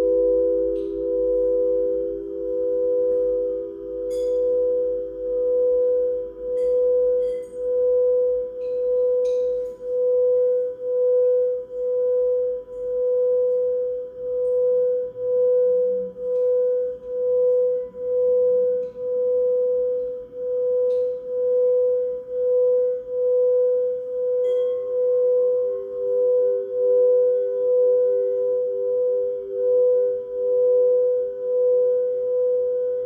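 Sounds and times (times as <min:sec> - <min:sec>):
lower singing bowl tone: 0:00.0 - 0:33.0
singing bowl tone: 0:00.0 - 0:33.0.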